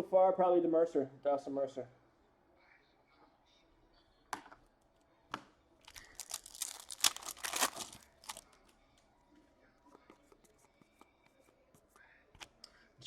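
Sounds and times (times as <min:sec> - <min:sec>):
foil wrapper tearing and crinkling: 0:05.9 - 0:08.5.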